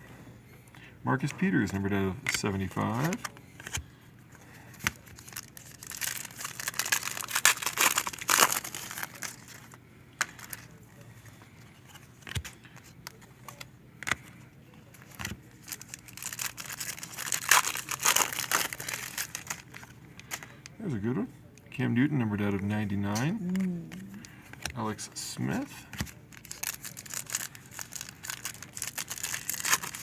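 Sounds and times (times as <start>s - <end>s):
foil packs tearing and crinkling: 4.8s - 9.6s, 15.5s - 20.5s, 26.1s - 30.0s.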